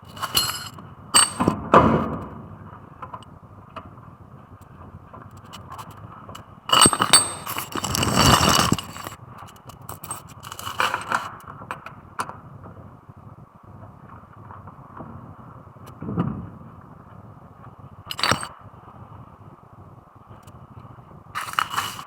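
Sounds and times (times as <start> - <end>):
metal tools clinking and clattering: 0.0 - 1.5, 6.7 - 9.2, 9.9 - 11.2, 18.1 - 18.5, 21.4 - 22.0.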